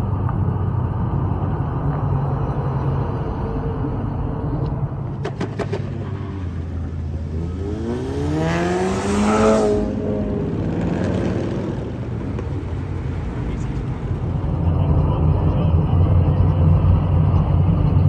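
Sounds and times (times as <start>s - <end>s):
cars driving past: 0.0s - 18.0s
car engine revving: 5.0s - 18.0s.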